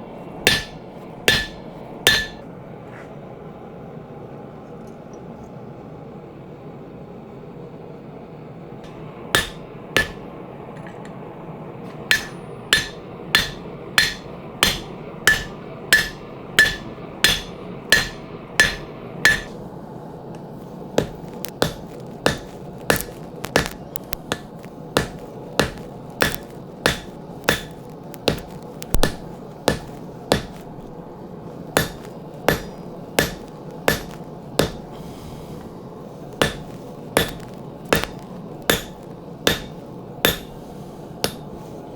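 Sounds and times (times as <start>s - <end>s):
hammer striking steel on anvil: 0.4s - 2.4s, 8.9s - 11.2s, 11.9s - 19.6s, 21.0s - 31.0s, 31.7s - 35.2s, 36.4s - 41.6s.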